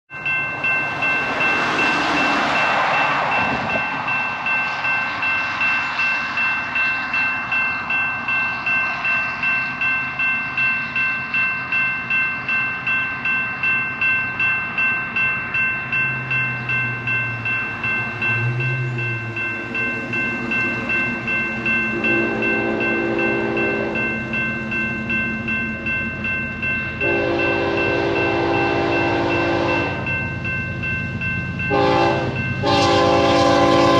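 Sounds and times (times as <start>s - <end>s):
crossing warning bells ringing: 0.1s - 33.9s
locomotive horn blast: 21.9s - 24.0s, 27.0s - 30.0s, 31.7s - 33.9s.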